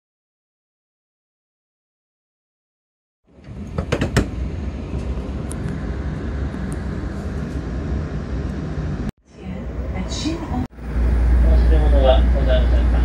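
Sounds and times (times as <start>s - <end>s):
train running rumble: 3.3s - 13.0s.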